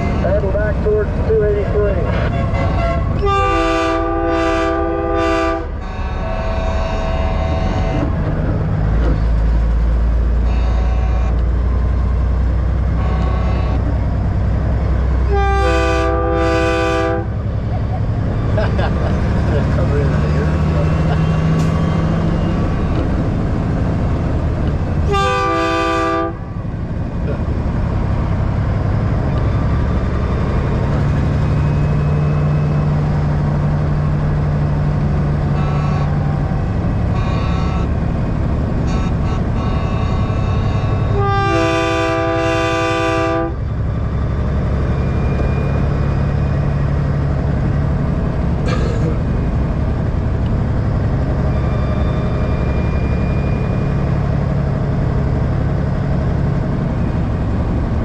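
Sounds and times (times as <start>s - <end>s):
diesel truck engine running: 0.0s - 58.0s
multi-tone air horn blasts: 2.1s - 8.0s, 10.4s - 11.4s, 13.0s - 13.8s, 15.3s - 17.3s, 25.0s - 26.5s, 35.5s - 36.4s, 37.0s - 38.0s, 38.8s - 43.6s.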